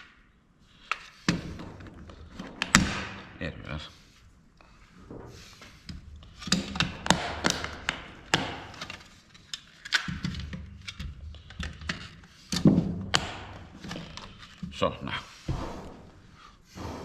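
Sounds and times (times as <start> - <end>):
plastic and metal parts knocking: 5.8 - 16.2.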